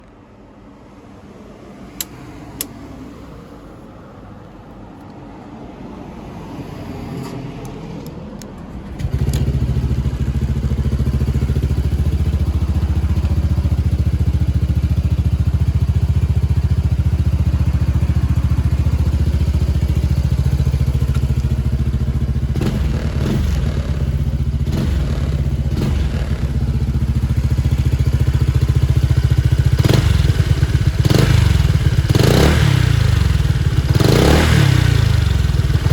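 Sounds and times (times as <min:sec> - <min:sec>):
scooter engine idling: 0:08.7 - 0:35.9.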